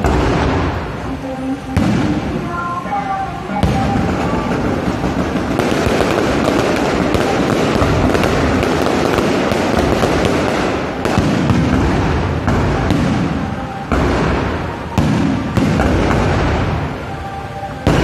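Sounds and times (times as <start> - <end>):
sharp firework bang: 0.0 - 1.0, 3.6 - 17.0
fireworks launching and crackling: 0.0 - 18.0.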